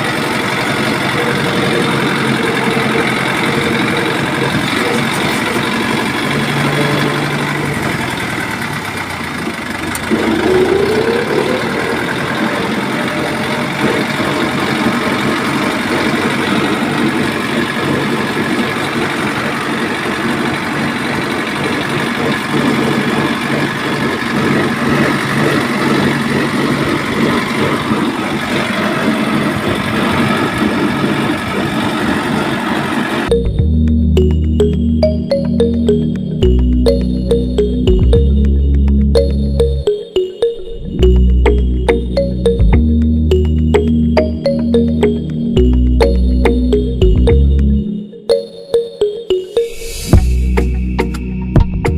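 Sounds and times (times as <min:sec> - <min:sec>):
tractor motor rattling: 0:00.0 - 0:33.4.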